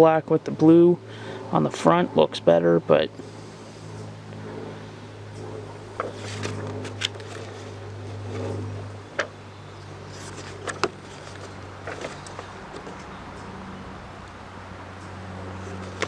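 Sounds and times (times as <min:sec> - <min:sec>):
low hum: 0:00.0 - 0:16.0
plastic rustling: 0:06.0 - 0:08.5, 0:10.1 - 0:13.1.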